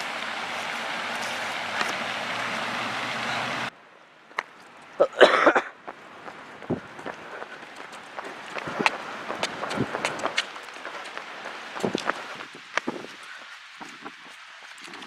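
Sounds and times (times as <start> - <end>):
person coughing: 5.0 - 5.8.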